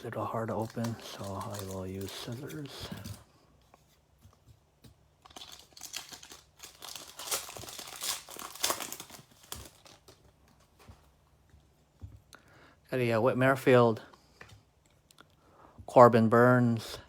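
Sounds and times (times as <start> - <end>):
plastic wrapper crackling: 0.2 - 3.2, 5.2 - 10.6
scissors cutting plastic wrapper: 0.5 - 3.2, 5.3 - 10.2.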